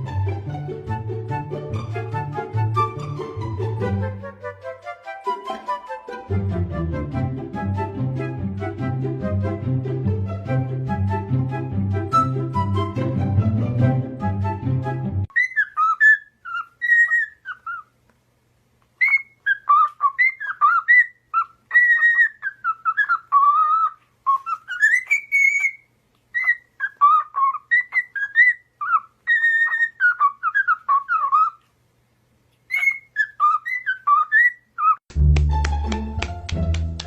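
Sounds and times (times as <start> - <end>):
parrot whistling: 15.3 - 17.9, 19.0 - 31.6, 32.7 - 35.0.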